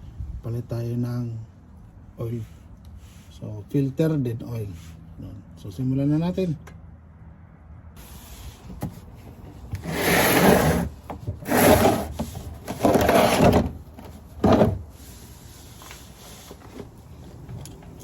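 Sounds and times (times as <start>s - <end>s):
rough scraping: 9.8s - 16.5s.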